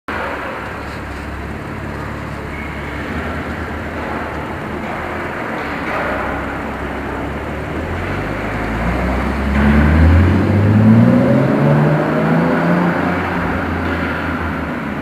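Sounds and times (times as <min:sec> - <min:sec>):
car exhaust accelerating: 0:00.1 - 0:15.0.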